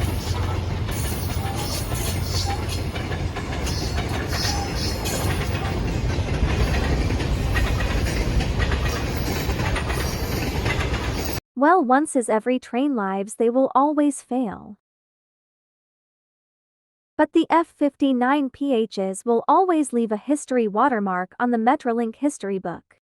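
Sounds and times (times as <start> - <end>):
train rumbling on rails: 0.0 - 11.4.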